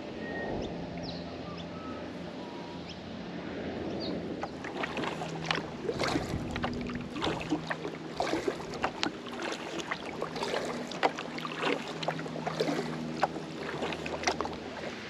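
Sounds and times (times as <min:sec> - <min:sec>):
paddle splashing water: 0:04.0 - 0:15.0.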